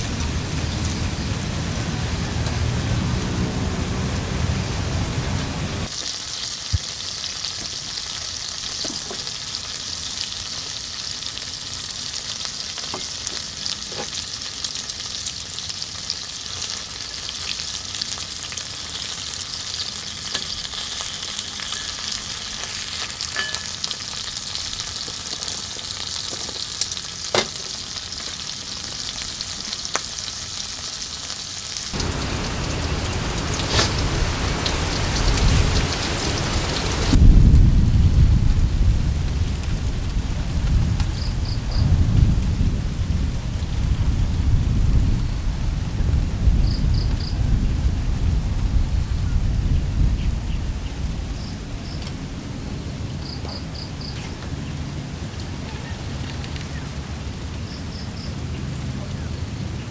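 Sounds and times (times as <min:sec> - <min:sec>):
food sizzling in a frying pan: 0:00.0 - 0:37.2.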